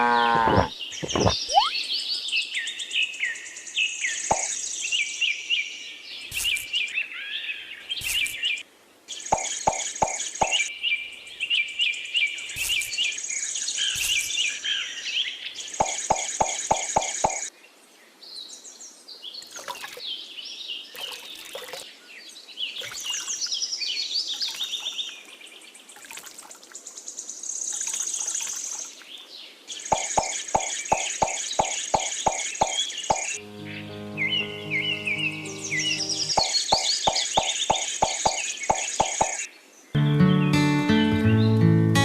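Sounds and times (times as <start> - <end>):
birds chirping: 0.0 - 5.2, 6.1 - 17.5, 27.6 - 41.9
regular clicking beat: 29.9 - 33.4, 36.1 - 39.4.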